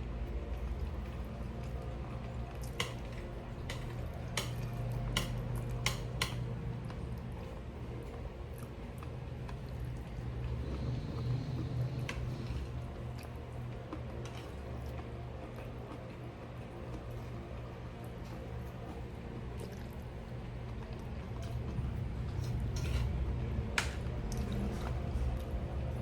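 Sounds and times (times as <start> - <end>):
wet chewing: 0.4 - 26.0
cutlery clicking on a dish: 2.6 - 6.5, 23.8 - 24.1.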